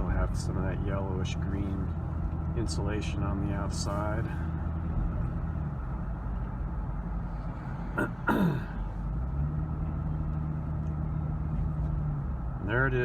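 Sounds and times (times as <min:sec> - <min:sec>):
car engine and road noise: 0:00.0 - 0:13.0
person clearing throat: 0:08.0 - 0:08.8.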